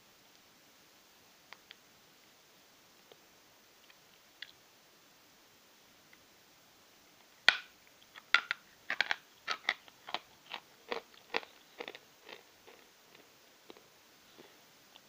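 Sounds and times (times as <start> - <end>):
dry crunchy chewing: 8.9 - 15.0.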